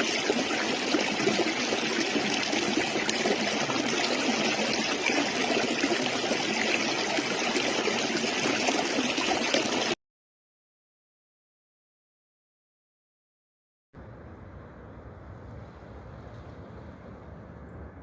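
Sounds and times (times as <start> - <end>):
stream water running: 0.0 - 10.0.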